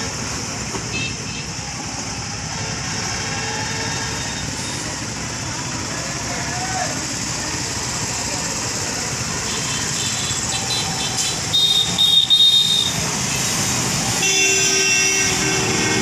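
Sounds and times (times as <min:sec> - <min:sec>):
road traffic: 0:00.0 - 0:16.0
vehicle horns honking: 0:00.9 - 0:01.6, 0:09.5 - 0:16.0.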